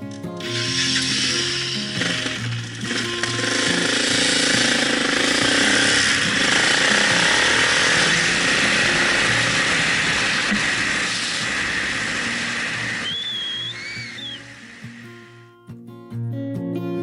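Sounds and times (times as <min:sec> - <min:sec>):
small motorcycle engine buzzing: 0:00.0 - 0:15.4.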